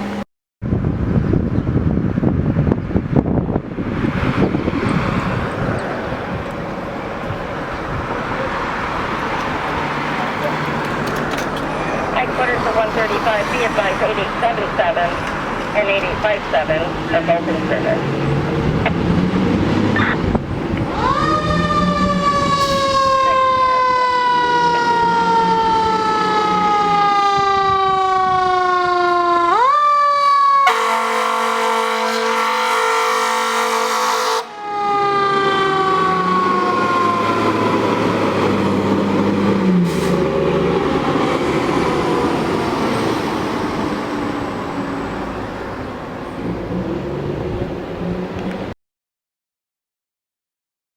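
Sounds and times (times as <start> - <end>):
diesel engine drone: 0.0 - 29.7, 30.5 - 48.7
fire engine siren wailing: 4.6 - 48.2
horn blast: 30.2 - 34.6.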